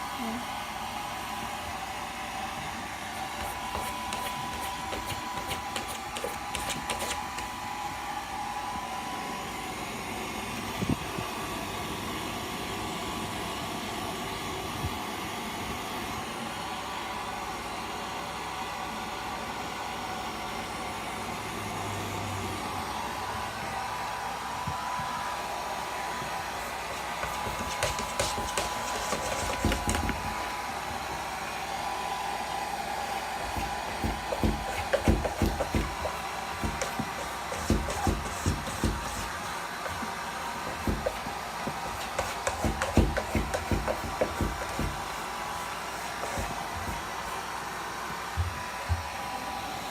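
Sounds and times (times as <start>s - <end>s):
hair dryer whining: 0.0s - 49.9s
cat scratching at door: 3.4s - 7.5s, 27.0s - 30.4s, 33.4s - 40.0s, 40.6s - 45.1s.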